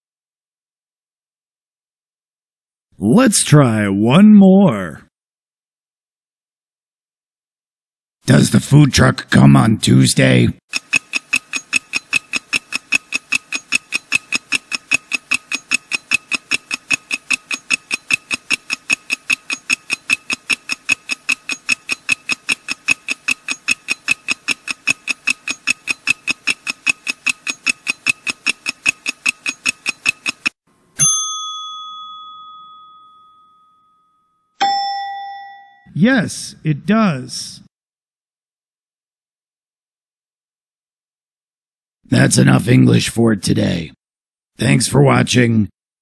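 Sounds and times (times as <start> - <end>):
rapid ringing timer ticks: 10.7 - 30.6
bell ding: 31.0 - 35.9.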